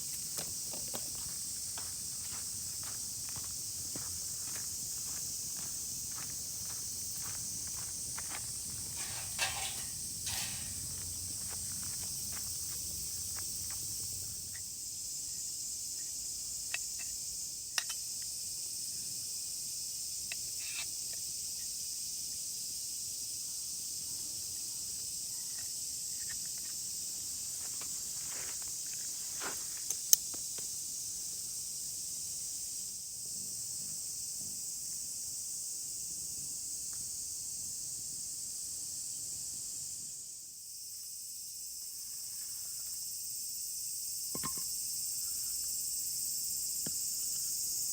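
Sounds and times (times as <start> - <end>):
high-pitched insect drone: 0.0 - 17.3.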